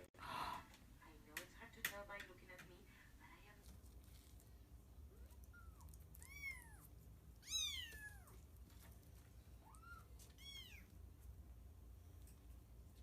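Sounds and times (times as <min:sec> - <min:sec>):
cat meowing: 0:05.2 - 0:08.4, 0:09.6 - 0:10.9.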